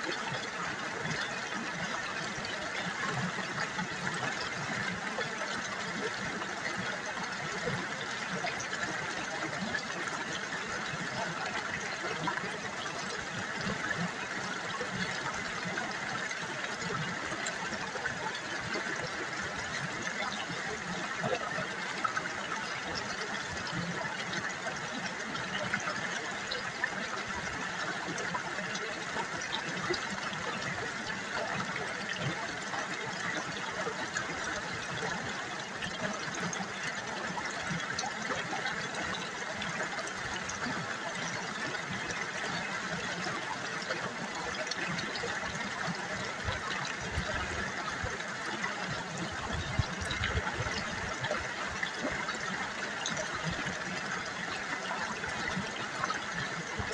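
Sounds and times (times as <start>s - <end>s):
river water babbling: 0.0s - 56.9s.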